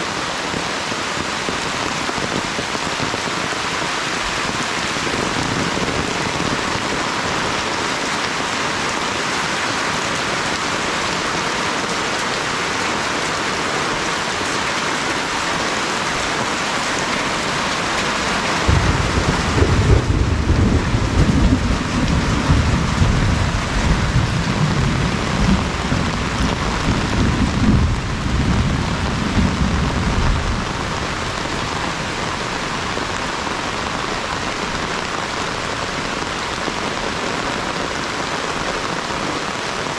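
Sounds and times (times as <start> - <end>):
steady rain falling: 0.0 - 39.9
low rumble of thunder: 18.5 - 31.7.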